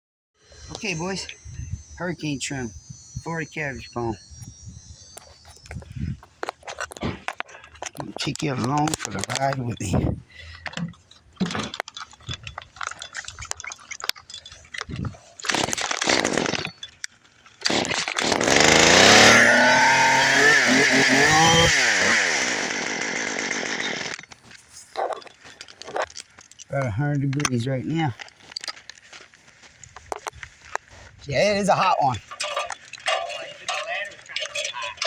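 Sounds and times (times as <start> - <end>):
chainsaw engine revving: 0.6 - 4.6, 15.5 - 16.8, 17.6 - 24.3.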